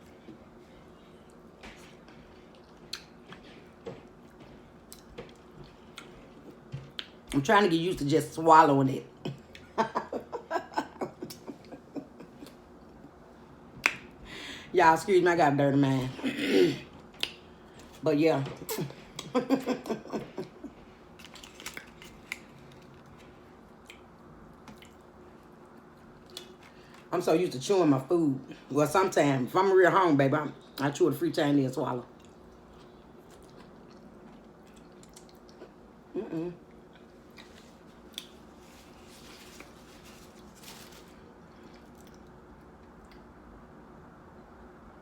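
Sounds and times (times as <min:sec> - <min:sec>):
steady low hum: 0:00.0 - 0:45.0
wet mouth eating sounds: 0:32.2 - 0:38.4.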